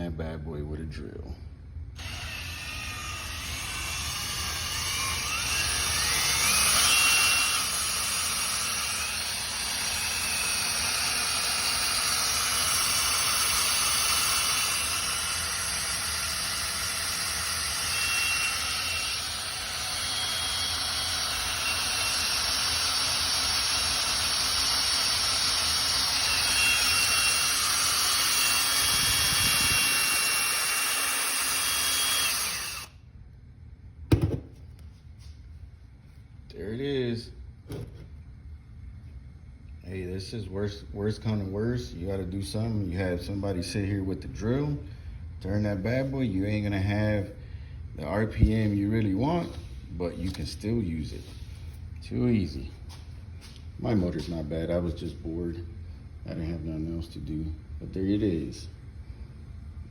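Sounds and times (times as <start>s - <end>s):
electric drill whining: 2.0s - 33.0s.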